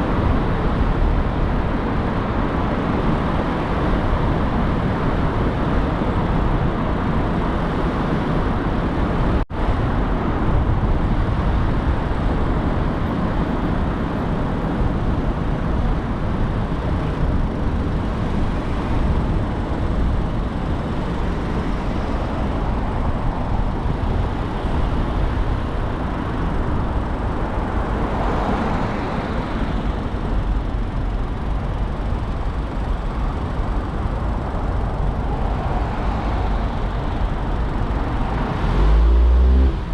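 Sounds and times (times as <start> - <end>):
car road and engine noise: 0.0 - 39.9.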